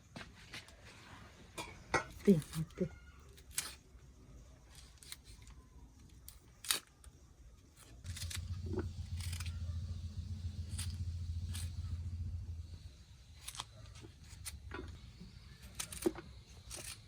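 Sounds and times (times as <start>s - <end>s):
steady low hum: 7.7s - 17.0s.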